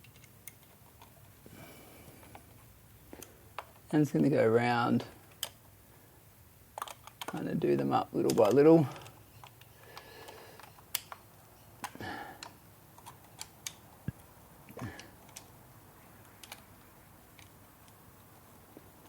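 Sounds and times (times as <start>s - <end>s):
screwdriver clicks and taps: 8.3s - 11.2s.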